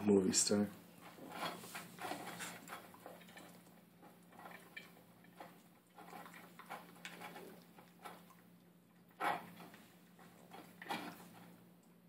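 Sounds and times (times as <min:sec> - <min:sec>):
puppy eating from food bowl: 0:00.5 - 0:12.0.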